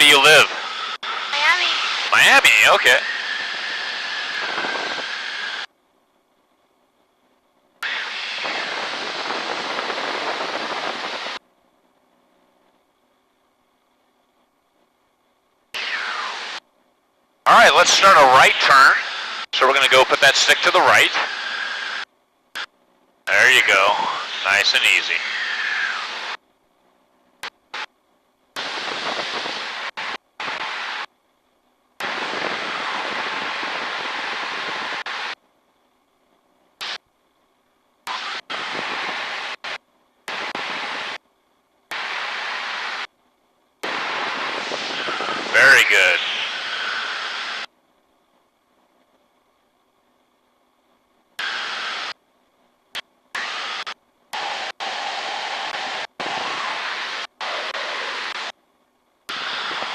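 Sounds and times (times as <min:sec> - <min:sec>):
aircraft cockpit hiss over intercom: 0:00.0 - 0:03.1, 0:23.3 - 0:25.4, 0:43.9 - 0:47.6
aircraft engine and slipstream: 0:00.0 - 0:14.8, 0:15.7 - 0:16.8, 0:17.5 - 0:37.1, 0:38.0 - 0:50.2, 0:51.0 - 0:52.2, 0:53.0 - 0:58.6, 0:59.3 - 0:59.9.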